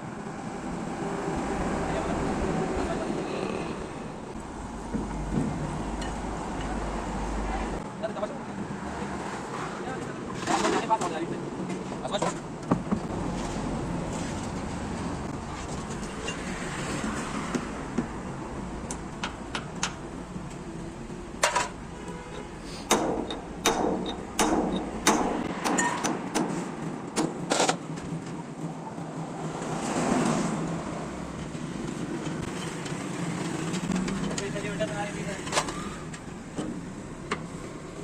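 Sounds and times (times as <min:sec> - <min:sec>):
passing vehicle: 0:00.0 - 0:11.8, 0:13.0 - 0:21.2
metallic clanks and knocks: 0:22.9 - 0:26.6.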